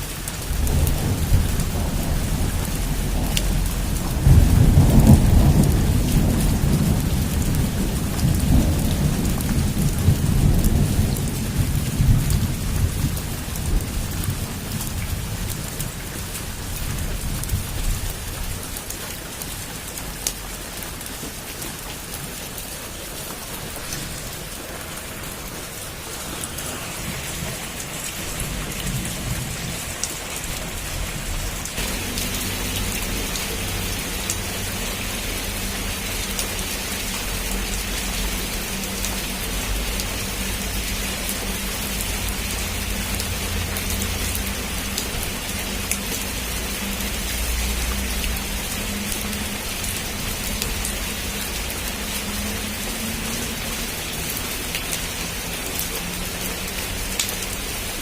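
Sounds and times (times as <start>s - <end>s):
heavy rain pouring: 0.0s - 58.0s
rolling thunder: 0.4s - 18.6s, 23.4s - 34.8s.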